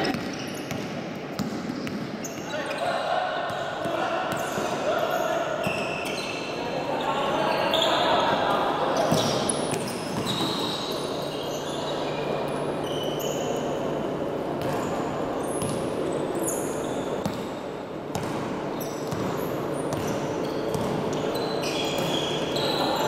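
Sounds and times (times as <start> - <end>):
sneaker squeaks on floor: 0.0 - 3.0, 4.3 - 13.9, 14.6 - 17.6, 18.2 - 23.0
crowd and players' voices: 0.0 - 23.0
basketball bouncing: 18.1 - 21.0.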